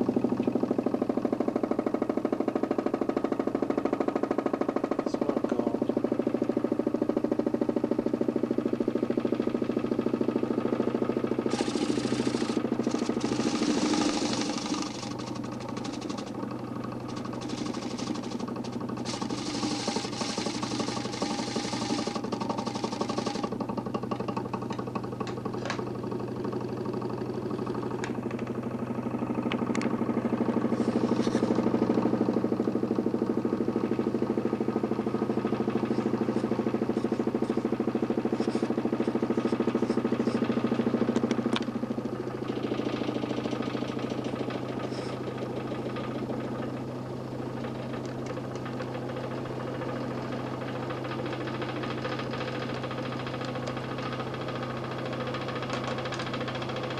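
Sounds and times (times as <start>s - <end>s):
electric motor humming: 10.9s - 26.4s, 29.4s - 56.9s.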